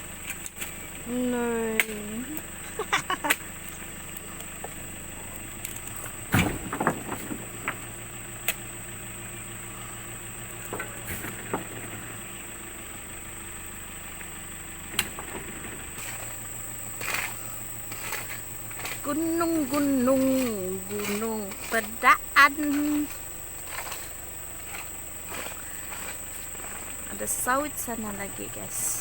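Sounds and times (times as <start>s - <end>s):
engine idling: 0.0s - 29.0s
sharp knocks and thumps: 6.3s - 7.9s, 10.6s - 12.4s, 14.9s - 26.9s.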